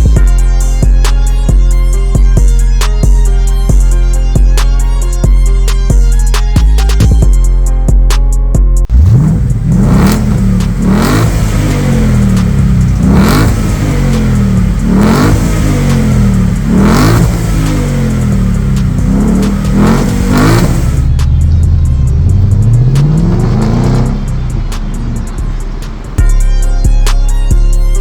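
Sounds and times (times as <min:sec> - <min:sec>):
car engine revving: 0:08.8 - 0:28.0.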